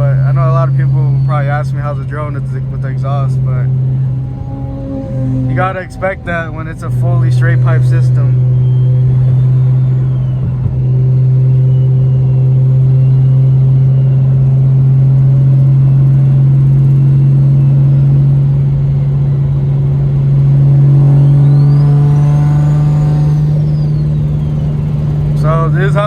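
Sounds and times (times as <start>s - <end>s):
low exhaust drone: 0.0s - 26.0s
high turbo whistle: 0.7s - 14.3s, 20.4s - 26.0s.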